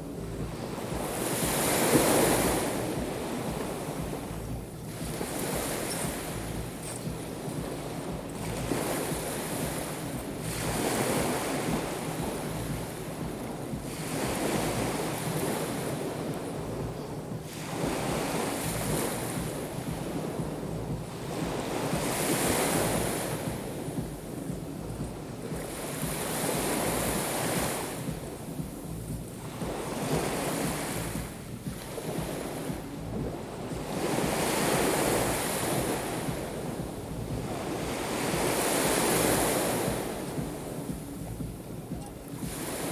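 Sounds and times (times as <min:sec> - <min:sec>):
waves washing onto shore: 0:00.0 - 0:42.9
wind rumbling on microphone: 0:00.0 - 0:42.9.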